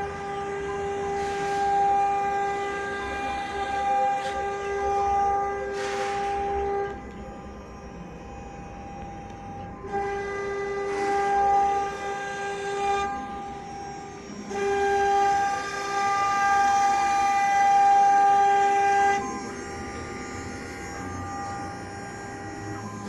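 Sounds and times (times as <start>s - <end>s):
router high-pitched whine: 0.0s - 23.0s.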